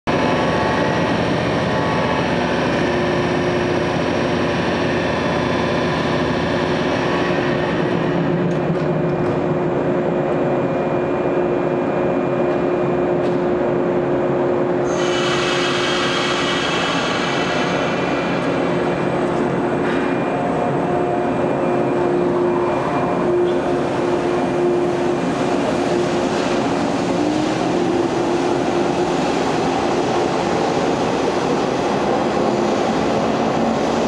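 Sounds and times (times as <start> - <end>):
train equipment humming: 15.6 - 34.0.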